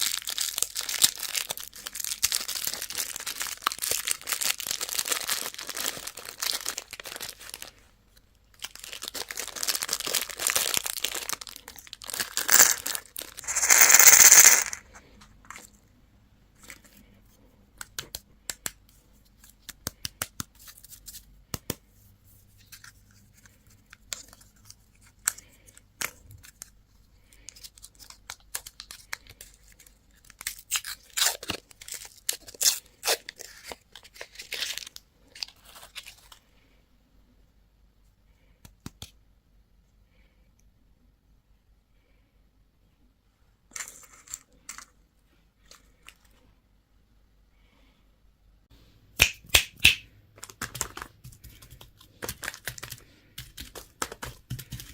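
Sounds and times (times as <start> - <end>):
candy wrapper crinkling: 0.0 - 7.8, 8.5 - 15.7, 27.4 - 36.4, 49.2 - 54.9
wrapper ripping: 0.0 - 7.8, 8.6 - 14.8.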